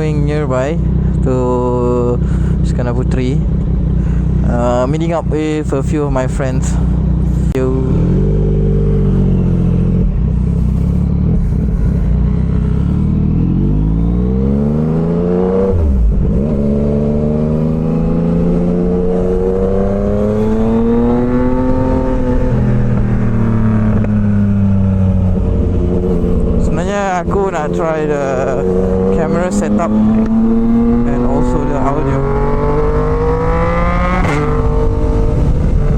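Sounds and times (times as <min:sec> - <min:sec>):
motorcycle engine accelerating: 0:00.0 - 0:35.9.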